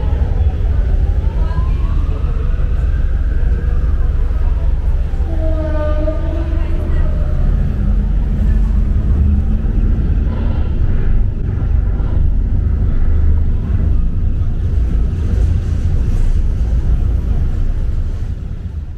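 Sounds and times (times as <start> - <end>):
low rumble: 0.0 - 18.9.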